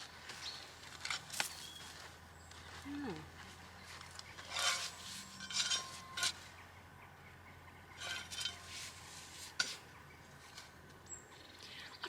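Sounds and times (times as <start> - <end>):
soil scraping rustles: 3.4 - 6.6, 8.0 - 10.8.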